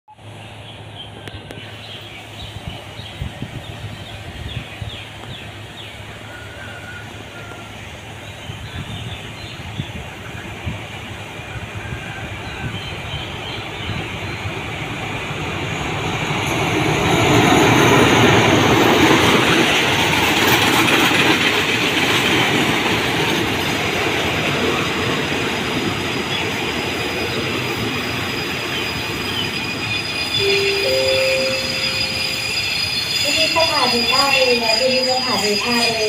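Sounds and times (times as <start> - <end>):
train wheels rumbling on rails: 0.2 - 36.0
train brake squeal: 26.3 - 36.0.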